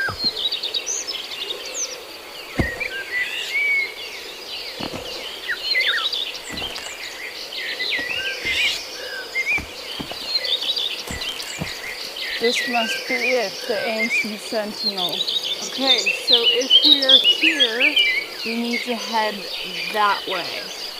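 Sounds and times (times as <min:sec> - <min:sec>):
dull thuds: 0:00.0 - 0:00.7, 0:02.4 - 0:03.7, 0:04.6 - 0:12.6
birds chirping and whistling: 0:00.0 - 0:20.9.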